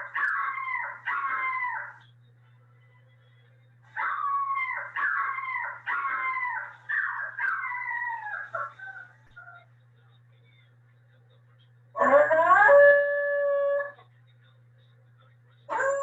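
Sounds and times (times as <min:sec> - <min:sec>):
puppy howling: 0:00.0 - 0:02.0, 0:03.9 - 0:09.6, 0:12.0 - 0:14.0, 0:15.7 - 0:16.0.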